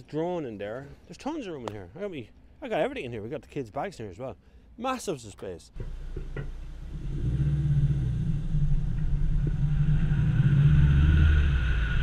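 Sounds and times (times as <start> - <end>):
car engine running: 5.8 - 12.0.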